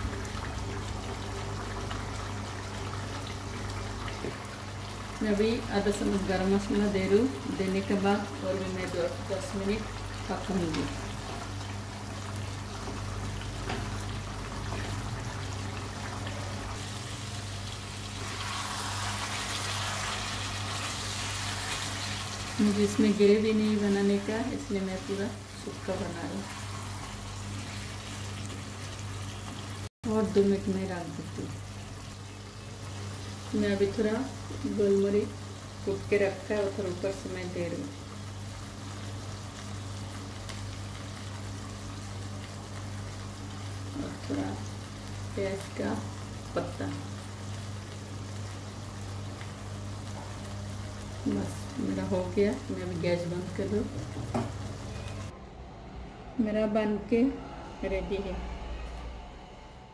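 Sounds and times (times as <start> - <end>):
food bubbling in a pan: 0.0 - 6.4
food sizzling in a pan: 0.0 - 55.3
low steady hum: 0.0 - 59.9.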